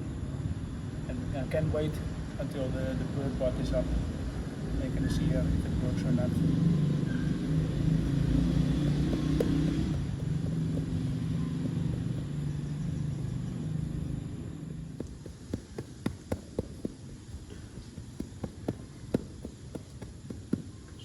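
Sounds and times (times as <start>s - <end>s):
low engine hum: 0.0s - 21.0s
light irregular knocks: 8.1s - 13.3s, 14.8s - 21.0s.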